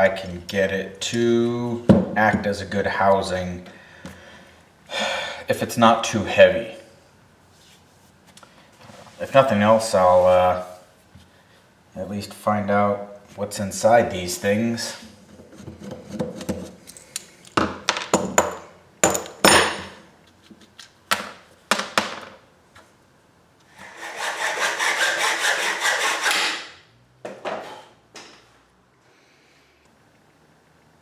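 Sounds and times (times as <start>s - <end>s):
knocks and clanks of handling: 15.4s - 22.4s
tool cutting noise: 23.7s - 26.8s.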